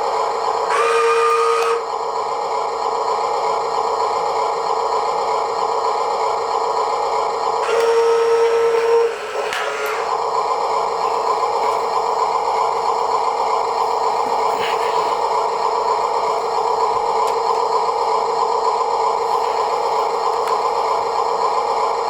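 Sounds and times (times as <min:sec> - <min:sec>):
toy truck motor whirring: 0:00.3 - 0:22.0.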